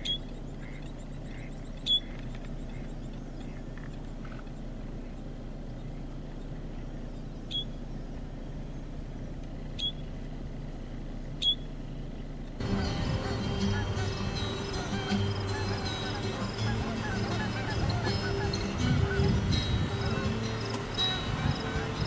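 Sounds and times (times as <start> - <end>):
sharp bird call notes: 0.0 - 3.7, 7.4 - 7.8, 9.8 - 10.1, 11.4 - 11.7, 12.6 - 22.0
faint chirping: 0.0 - 10.2, 11.4 - 22.0
steady low rumble: 0.0 - 22.0.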